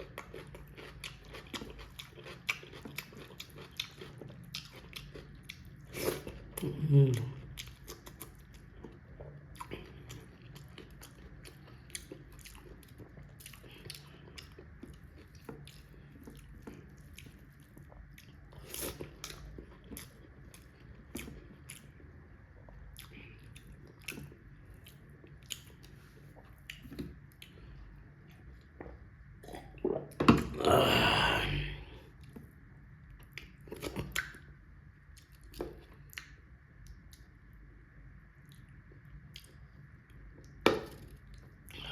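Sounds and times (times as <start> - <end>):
person chewing food: 0.0 - 37.4, 38.4 - 41.9
wet mouth clicks and smacks: 33.4 - 34.5.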